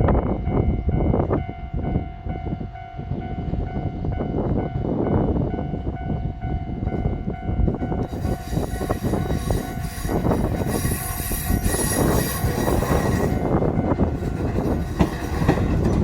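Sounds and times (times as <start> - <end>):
electric train rumbling on rails: 0.0 - 16.0
high-pitched wheel squeal: 8.0 - 13.6.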